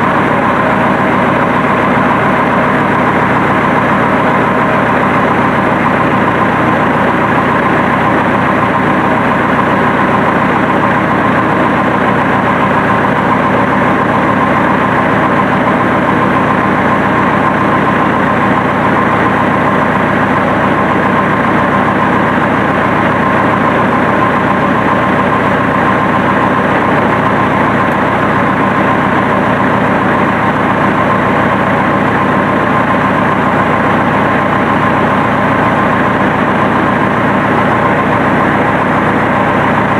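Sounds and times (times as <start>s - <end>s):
diesel tractor engine idling: 0.0s - 39.9s.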